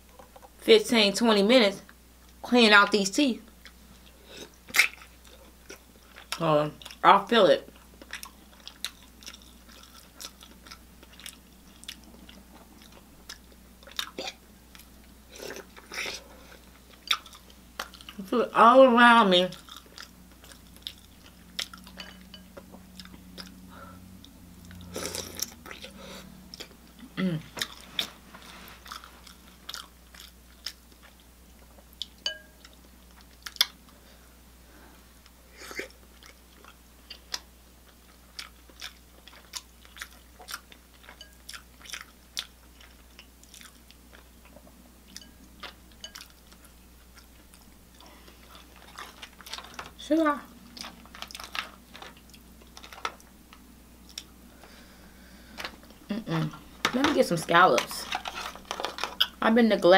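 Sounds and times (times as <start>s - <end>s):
person chewing with mouth smacks: 3.6s - 7.0s, 7.7s - 18.2s, 22.6s - 23.6s, 24.2s - 33.8s, 35.6s - 49.9s, 50.6s - 54.8s.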